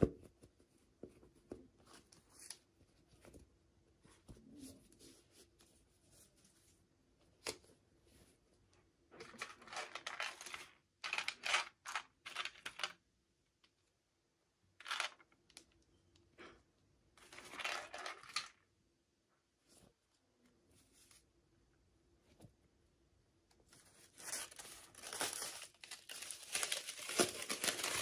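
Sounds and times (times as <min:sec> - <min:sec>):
packaging crinkling and tearing: 0:24.0 - 0:28.0.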